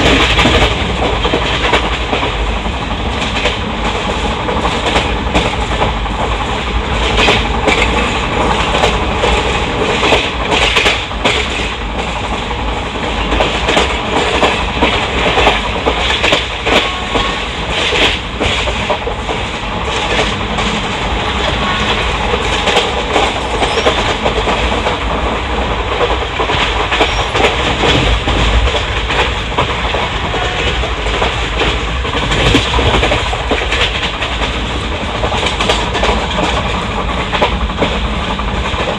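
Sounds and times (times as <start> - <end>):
train wheels rumbling on track: 0.0 - 38.9
wheels clattering over rail joints: 17.8 - 38.9.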